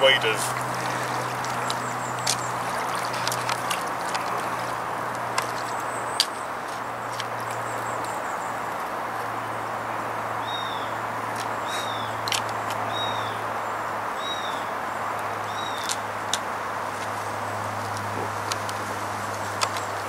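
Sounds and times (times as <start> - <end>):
bird high arching call: 11.6 - 12.2.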